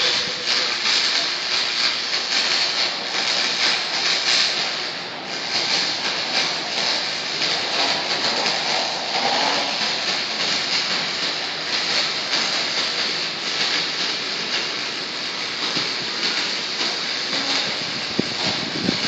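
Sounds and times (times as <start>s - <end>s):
welding arc crackling and hissing: 0.0s - 19.0s.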